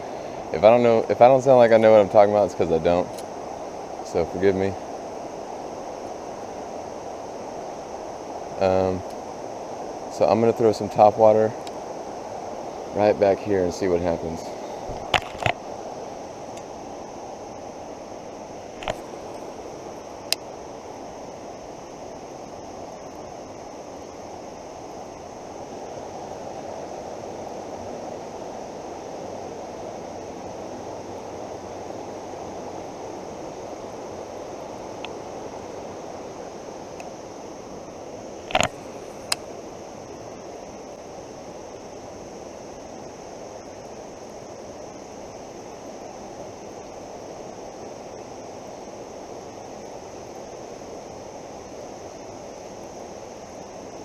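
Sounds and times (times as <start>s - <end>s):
creek water rushing: 0.0s - 54.0s
sharp clicks: 38.5s - 39.4s.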